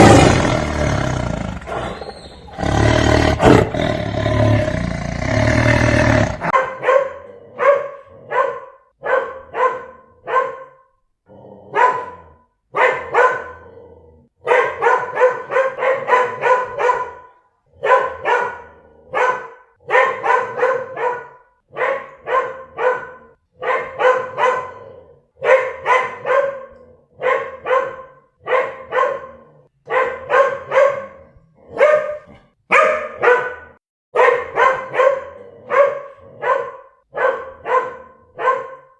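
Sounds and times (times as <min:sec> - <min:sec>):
loud roar: 0:00.0 - 0:06.6
dog barking: 0:01.5 - 0:11.0, 0:11.7 - 0:13.8, 0:14.4 - 0:38.9.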